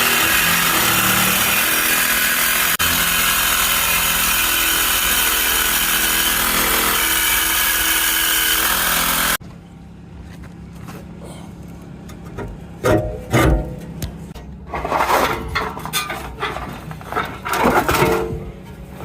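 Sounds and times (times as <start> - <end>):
power tool cutting steel pipe: 0.0 - 9.4.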